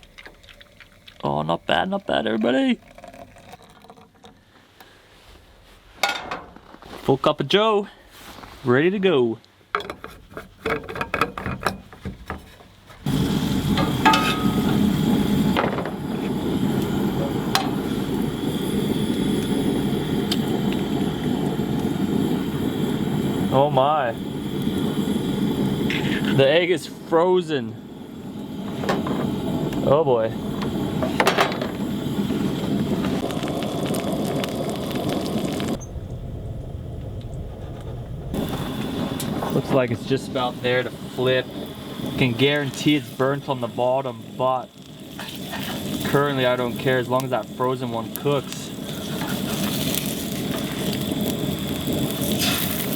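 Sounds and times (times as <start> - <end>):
eggs sizzling in a pan: 0.0 - 4.2, 10.2 - 35.8, 38.3 - 52.9
metal cookware clattering: 6.0 - 6.6, 9.8 - 12.6, 13.7 - 14.8
gas stove burner rushing: 9.9 - 52.9
low rumble: 27.8 - 41.2.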